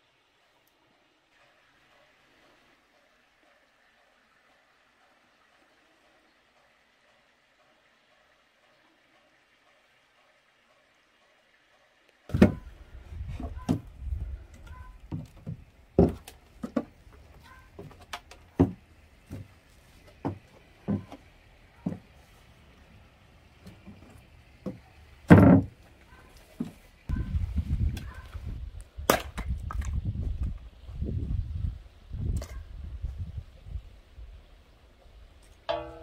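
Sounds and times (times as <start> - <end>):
firewood knocks and thuds: 12.3 - 12.7, 15.1 - 17.0, 17.8 - 19.5, 20.2 - 21.2, 24.6 - 25.8.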